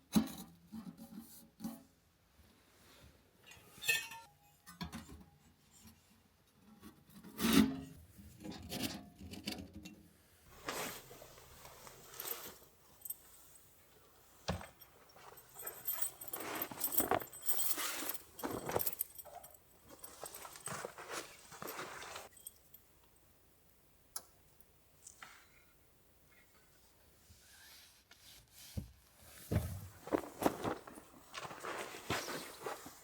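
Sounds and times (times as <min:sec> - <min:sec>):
clinks: 0:11.4 - 0:23.2.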